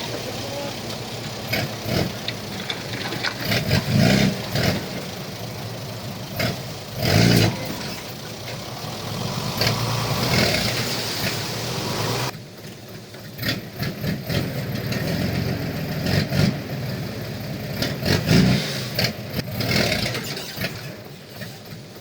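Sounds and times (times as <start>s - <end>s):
metal clanks: 0.0s - 5.0s
heavy diesel engine running: 0.0s - 22.0s.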